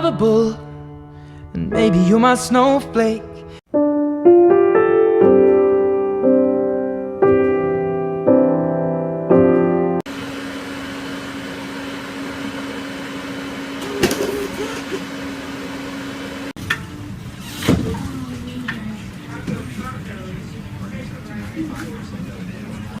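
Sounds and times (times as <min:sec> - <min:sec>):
electric piano chords: 0:00.0 - 0:10.1.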